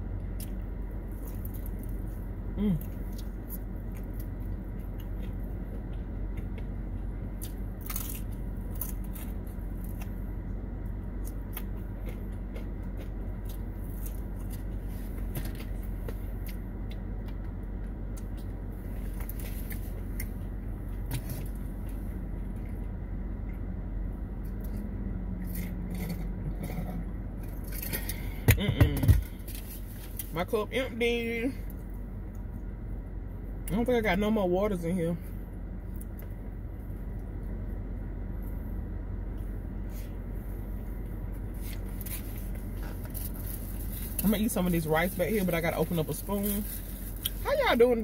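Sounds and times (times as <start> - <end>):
low hum inside a car: 0.0 - 48.0
person chewing fried food: 0.2 - 23.6.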